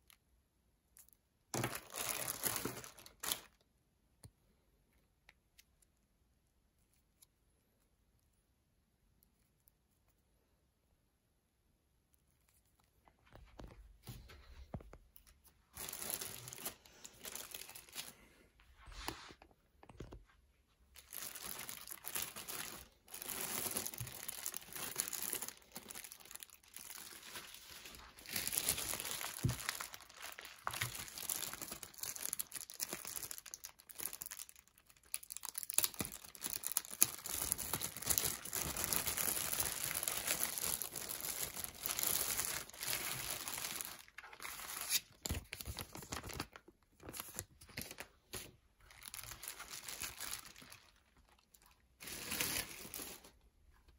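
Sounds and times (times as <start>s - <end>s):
packaging crinkling and rustling: 1.5s - 3.6s, 13.1s - 53.9s
packaging tearing: 1.6s - 3.6s, 21.0s - 50.9s.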